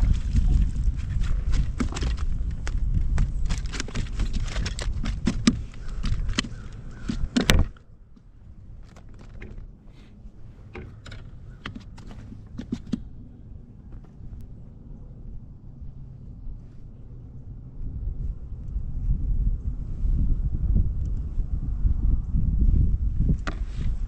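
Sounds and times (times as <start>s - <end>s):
knocks and clicks of gear: 0.0s - 14.6s, 23.4s - 23.7s
wind rumbling on microphone: 0.0s - 24.0s.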